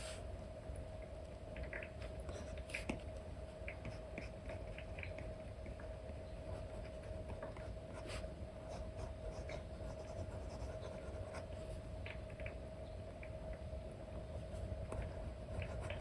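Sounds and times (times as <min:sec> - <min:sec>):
faint steady hum: 0:00.0 - 0:16.0
stylus scratching and tapping screen: 0:09.0 - 0:11.5, 0:15.0 - 0:16.0.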